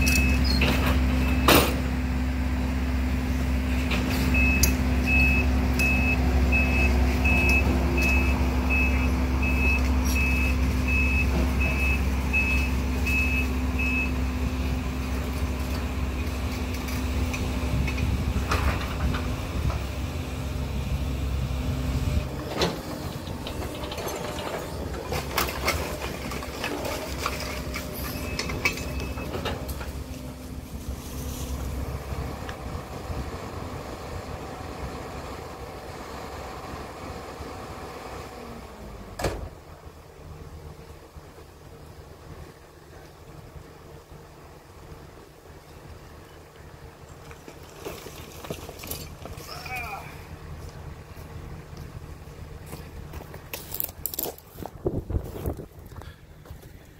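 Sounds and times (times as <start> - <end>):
excavator diesel engine running: 0.0 - 56.9
travel alarm beeping: 4.3 - 14.2.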